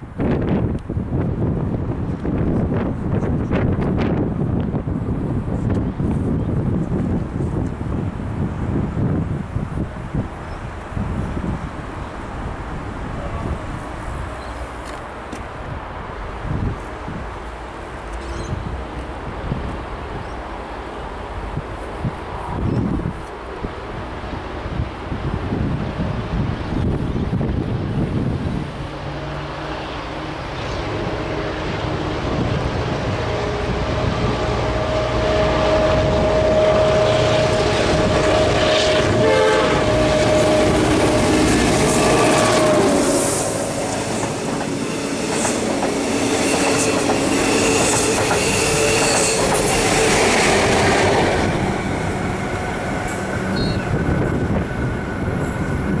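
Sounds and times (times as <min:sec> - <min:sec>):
diesel locomotive engine: 0:00.0 - 0:56.0
wheels screeching: 0:29.1 - 0:56.0
long held tone: 0:33.2 - 0:43.9, 0:53.1 - 0:54.3.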